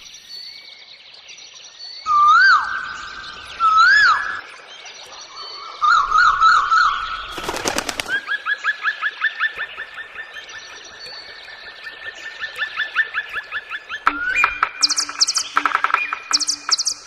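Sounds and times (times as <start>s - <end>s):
clattering wing flaps: 7.3s - 8.3s
small birds chirping: 9.6s - 17.0s.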